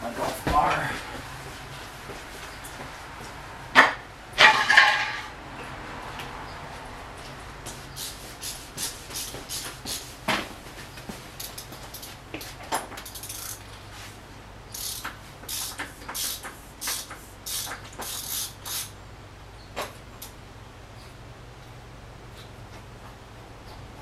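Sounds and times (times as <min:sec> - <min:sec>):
steady low hum: 0:00.0 - 0:24.0
hand tools clicking and scraping: 0:03.8 - 0:06.3, 0:07.2 - 0:18.9.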